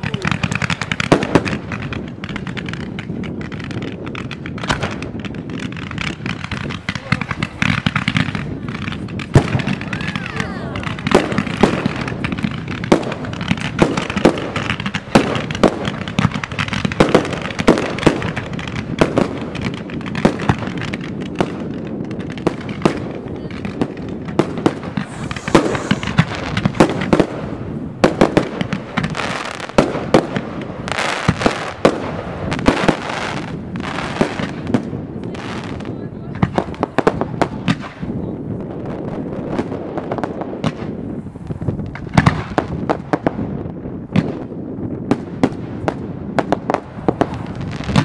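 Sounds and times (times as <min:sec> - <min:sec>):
fireworks bangs and thumps: 0:00.0 - 0:48.0
firework hissing rush: 0:23.7 - 0:34.7.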